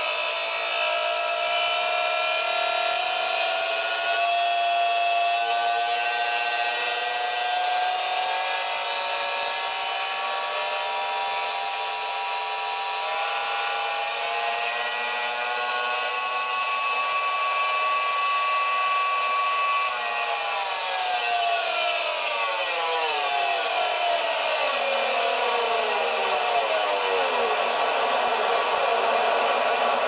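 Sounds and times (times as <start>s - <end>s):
electronic synth tones droning: 22.9s - 30.0s.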